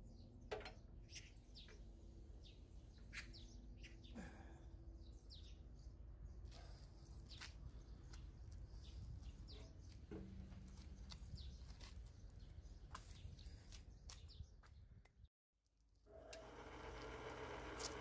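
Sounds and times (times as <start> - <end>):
bird chirps: 1.0 - 1.8, 2.4 - 4.2.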